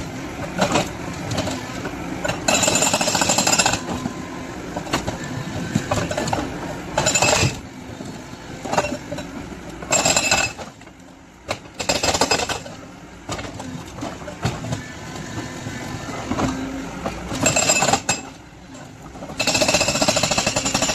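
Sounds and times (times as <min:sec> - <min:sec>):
excavator engine running: 0:00.0 - 0:20.9
hydraulic breaker hammering: 0:02.2 - 0:04.2, 0:09.9 - 0:10.7, 0:11.4 - 0:12.7, 0:19.3 - 0:20.9.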